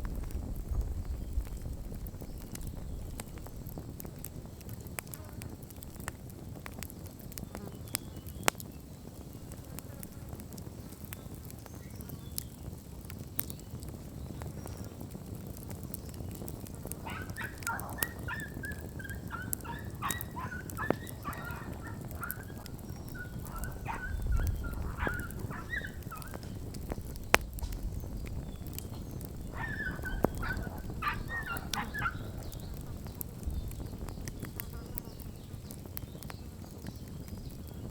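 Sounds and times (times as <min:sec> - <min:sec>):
bonfire crackling: 0:00.0 - 0:37.9
chattering high-pitched call: 0:17.0 - 0:26.5, 0:29.5 - 0:32.7.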